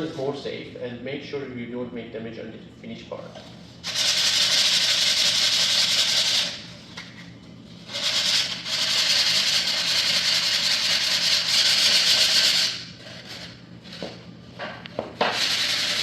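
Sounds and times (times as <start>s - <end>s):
sandpaper rubbing on plank: 3.8s - 6.6s, 7.9s - 13.4s, 15.2s - 16.0s.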